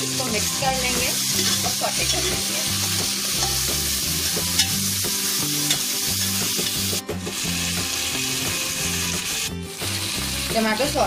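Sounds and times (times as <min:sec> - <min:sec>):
vegetables sizzling in hot fat: 0:00.0 - 0:11.0
ladle stirring in a pot: 0:01.3 - 0:03.7.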